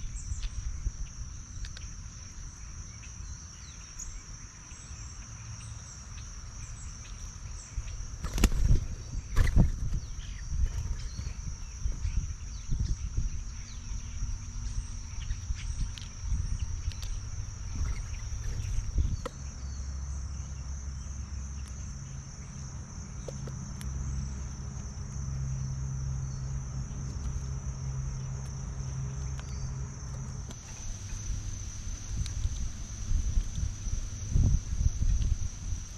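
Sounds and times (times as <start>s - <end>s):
crickets chorus: 0.0s - 35.9s
low hum: 23.1s - 35.9s.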